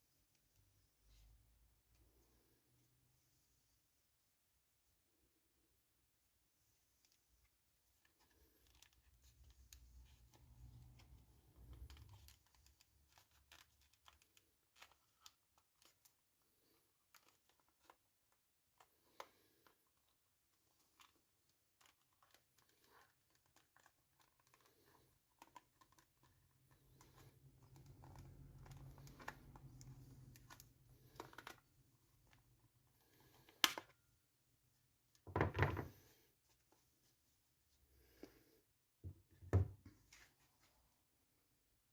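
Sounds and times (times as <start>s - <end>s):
wrapping rustling and tearing: 7.0s - 33.8s.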